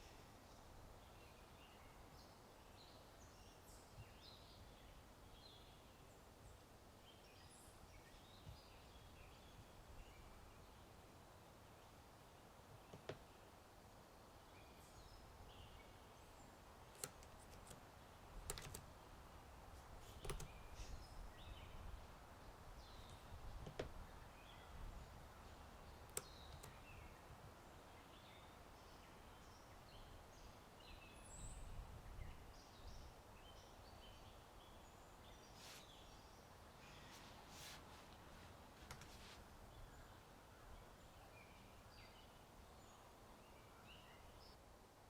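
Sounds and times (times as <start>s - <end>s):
faint birdsong chirps: 0.0s - 45.0s
computer keyboard typing clicks: 17.0s - 17.8s, 18.4s - 18.8s, 20.2s - 20.5s, 26.1s - 26.8s.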